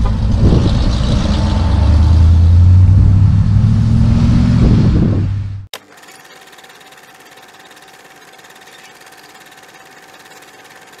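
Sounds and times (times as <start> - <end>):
loud engine running: 5.5 - 11.0
fast mechanical clatter: 5.7 - 11.0.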